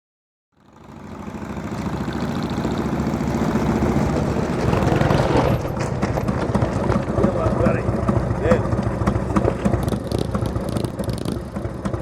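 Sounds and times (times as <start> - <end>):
train rumbling and chugging: 0.9 - 12.0.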